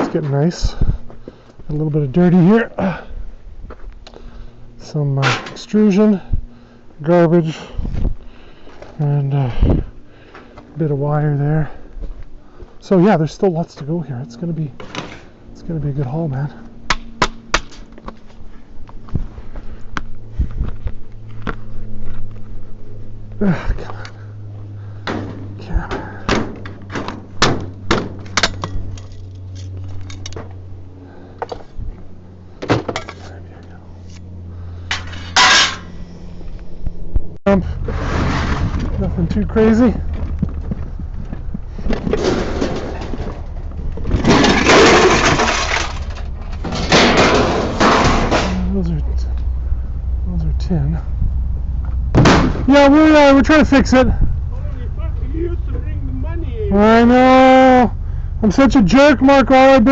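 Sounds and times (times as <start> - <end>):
steady low hum: 0.0 - 59.9
scrap metal clanking: 34.8 - 36.0, 37.8 - 40.2, 41.8 - 49.0.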